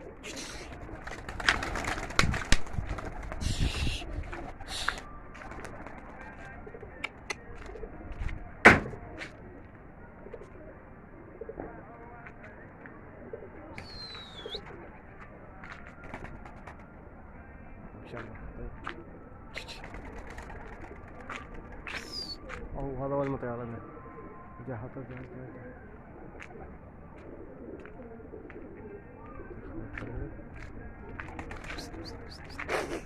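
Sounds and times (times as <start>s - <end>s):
pigeons cooing: 0.0s - 2.2s, 3.2s - 5.2s, 13.2s - 15.0s, 31.0s - 33.0s.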